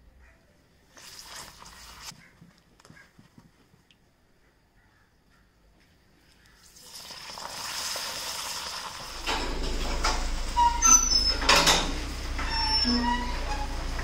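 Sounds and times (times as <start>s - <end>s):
frying in hot oil: 0.9s - 2.1s, 6.6s - 9.2s
low rumble: 9.1s - 14.0s
metallic clanks: 9.1s - 14.0s
short high squeaks: 9.2s - 14.0s.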